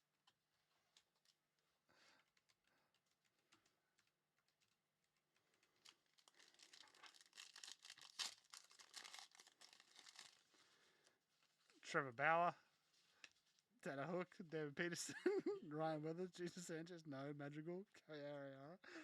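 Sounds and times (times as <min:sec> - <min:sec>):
foil wrapper tearing and crinkling: 0:05.8 - 0:10.5.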